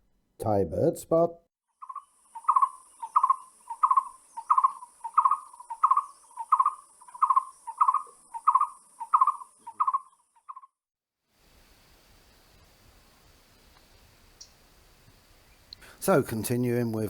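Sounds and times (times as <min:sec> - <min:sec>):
steady high hiss: 0:11.4 - 0:17.0.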